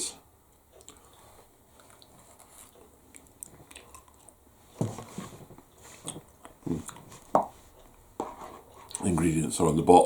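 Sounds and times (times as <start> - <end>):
person chewing noodles: 0.7 - 4.5, 6.0 - 7.2.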